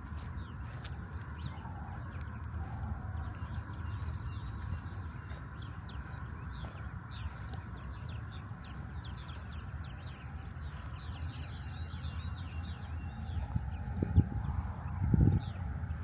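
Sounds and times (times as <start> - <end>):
birds chirping: 0.0 - 16.0
low rumble: 0.0 - 16.0.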